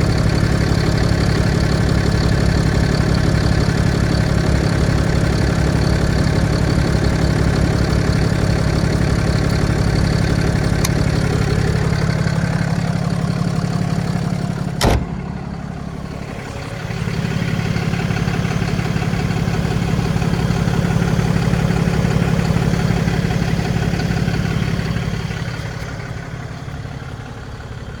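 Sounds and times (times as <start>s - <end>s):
truck engine idling: 0.0s - 28.0s
sharp knock: 14.8s - 15.2s.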